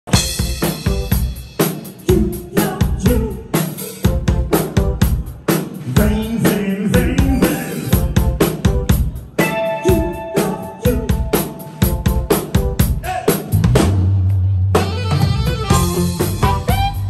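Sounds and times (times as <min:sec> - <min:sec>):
bass drum and snare beat: 0:00.1 - 0:10.0, 0:10.9 - 0:17.0
live band playing: 0:00.1 - 0:17.0.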